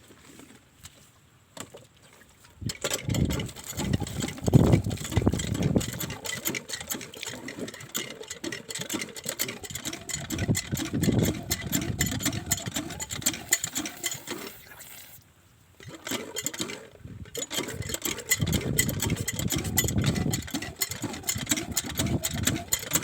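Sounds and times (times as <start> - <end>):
diesel engine knocking: 9.6 - 13.9, 17.8 - 23.0.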